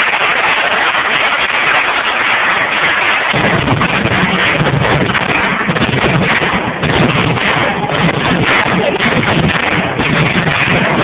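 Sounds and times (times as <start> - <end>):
audience applauding: 0.0 - 5.2
deep rumble: 3.3 - 11.0.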